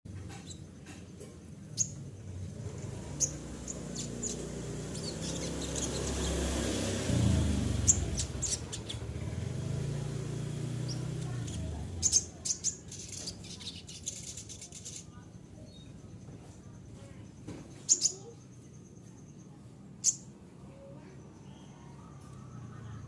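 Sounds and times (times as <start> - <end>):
low vehicle engine hum: 0.1 - 23.0
songbird chirps: 0.1 - 23.0.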